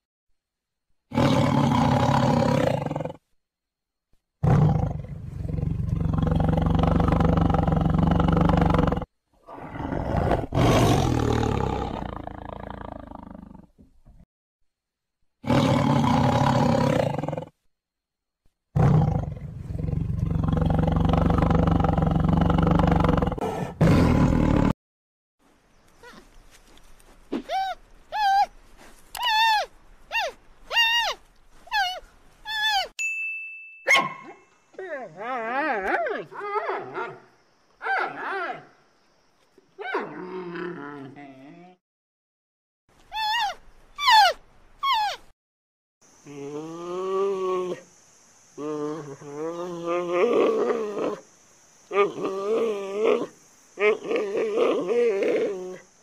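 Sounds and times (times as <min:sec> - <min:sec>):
tiger roaring: 0:01.1 - 0:03.2, 0:04.4 - 0:13.7, 0:15.4 - 0:17.5, 0:18.8 - 0:24.7.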